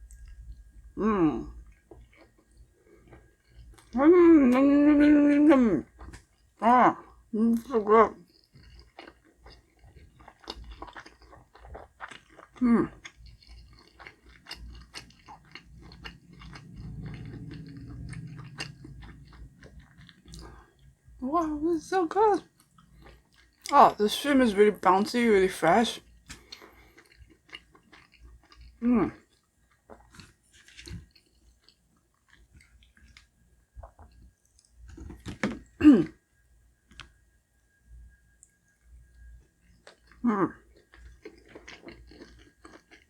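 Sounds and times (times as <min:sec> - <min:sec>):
closed-mouth hum: 0:00.0 - 0:01.9
wet chewing: 0:01.6 - 0:07.2, 0:08.2 - 0:21.0, 0:22.4 - 0:23.8, 0:26.0 - 0:35.7, 0:39.7 - 0:43.0.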